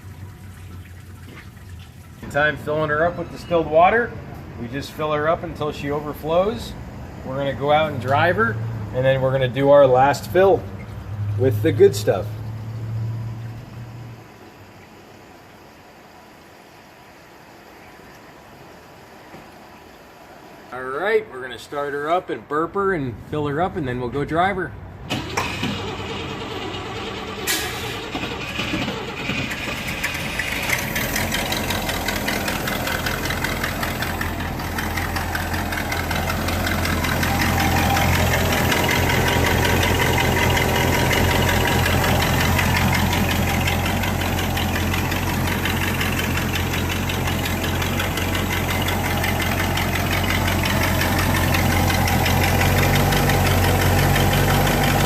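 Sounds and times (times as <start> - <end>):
car engine idling: 25.1 - 55.0.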